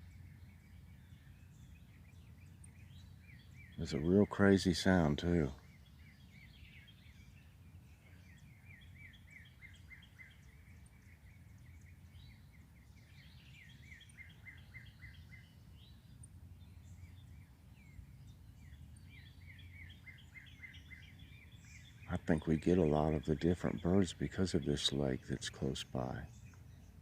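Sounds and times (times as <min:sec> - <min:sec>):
faint songbird chirping: 0:00.0 - 0:27.0
low steady background rumble: 0:00.0 - 0:27.0.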